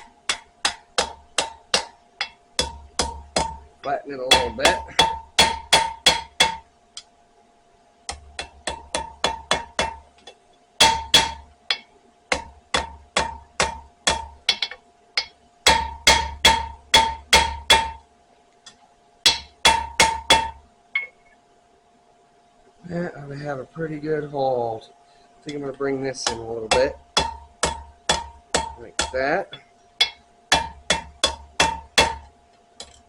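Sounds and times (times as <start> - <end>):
hammer striking steel on anvil: 0.0 - 6.7, 8.1 - 10.1, 10.8 - 18.0, 18.7 - 21.3, 25.5 - 33.0.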